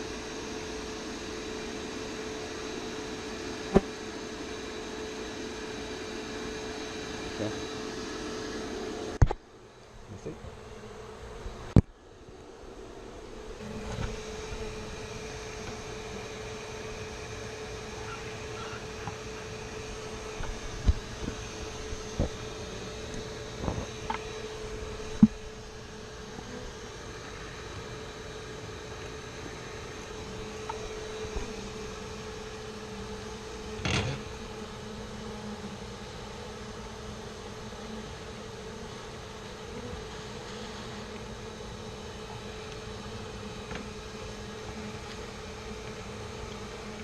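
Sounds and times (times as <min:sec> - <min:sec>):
vacuum hum and hiss: 0:00.0 - 0:47.0.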